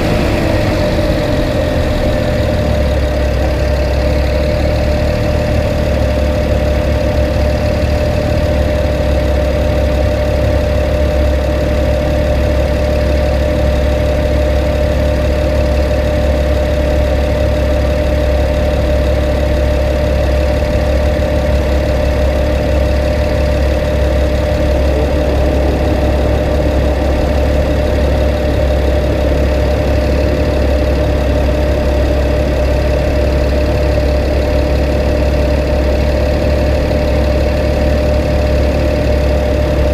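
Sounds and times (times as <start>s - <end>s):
car engine drone: 0.0s - 39.9s
mid-pitched hum: 20.7s - 35.4s.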